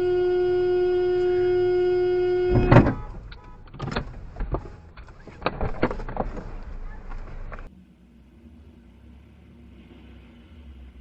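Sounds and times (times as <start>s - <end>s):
knocks and rattles: 2.6s - 7.7s.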